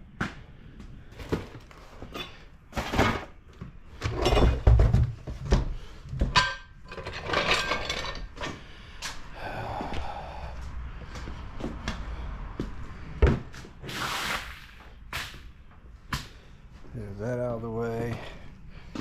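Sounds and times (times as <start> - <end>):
metal tools clinking and knocking: 6.2 - 8.6.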